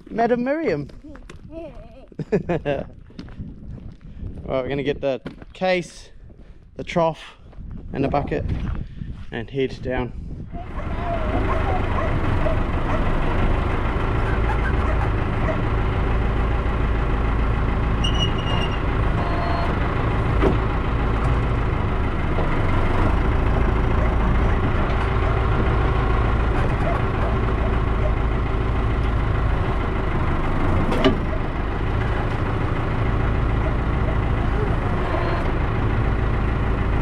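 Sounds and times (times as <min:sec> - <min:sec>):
tractor engine running: 0:10.4 - 0:37.0.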